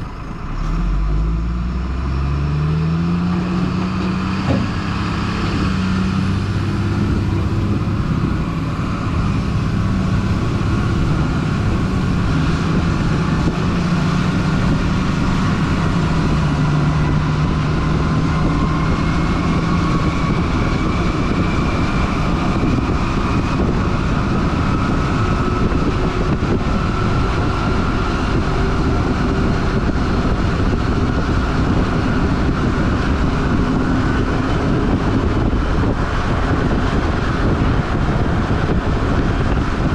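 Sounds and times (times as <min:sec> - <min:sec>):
truck diesel engine driving: 0:00.0 - 0:39.9.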